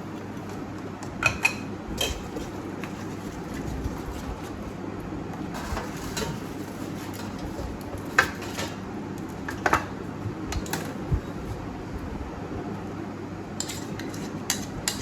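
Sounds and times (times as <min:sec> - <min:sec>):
dishes and utensils clinking: 0:01.1 - 0:03.0, 0:05.6 - 0:08.8, 0:13.6 - 0:15.0.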